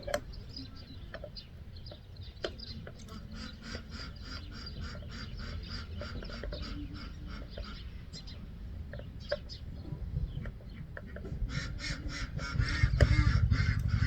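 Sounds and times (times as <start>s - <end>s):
bird calling rapidly: 3.1s - 8.3s, 10.6s - 14.0s
steady low rumble: 9.5s - 14.0s.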